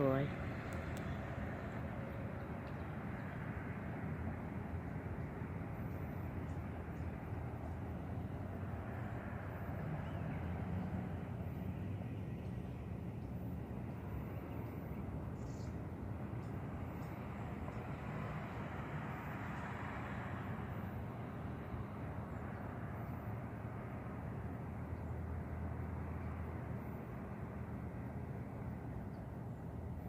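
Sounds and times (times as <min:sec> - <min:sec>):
cars driving by: 0:02.6 - 0:24.5.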